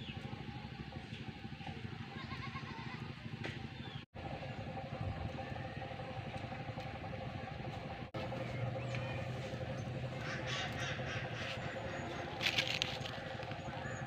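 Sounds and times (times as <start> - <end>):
steady low hum: 0.0 - 14.0
crows cawing: 10.1 - 14.0.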